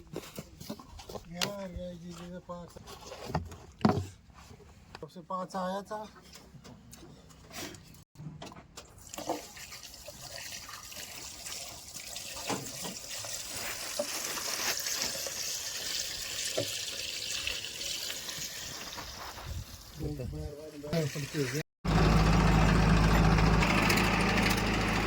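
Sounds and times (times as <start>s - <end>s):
water pouring: 9.0s - 20.0s.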